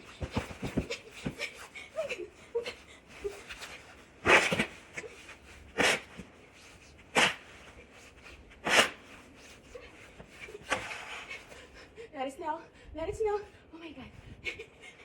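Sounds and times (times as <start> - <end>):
snow shovel scraping snow: 4.2 - 6.2, 7.1 - 7.6, 8.6 - 9.2, 10.6 - 11.4.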